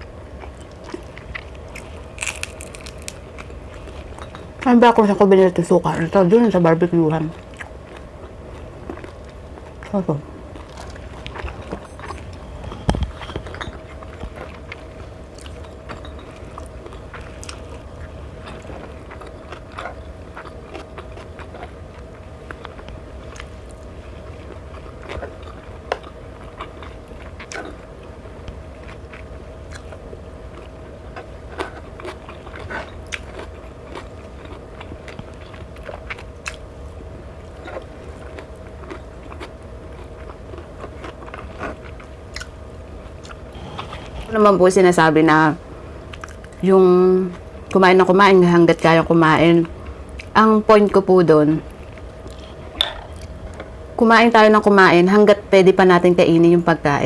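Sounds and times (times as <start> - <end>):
steady low hum: 0.0 - 57.0
chewing and biting: 0.3 - 4.3, 7.4 - 44.3, 46.1 - 46.6.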